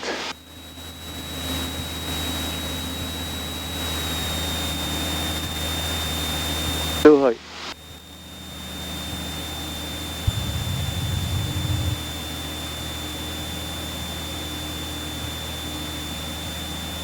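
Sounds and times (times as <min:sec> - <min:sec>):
light aircraft engine drone: 0:07.6 - 0:12.1
high whine: 0:10.2 - 0:12.1
low rumble: 0:10.2 - 0:12.1.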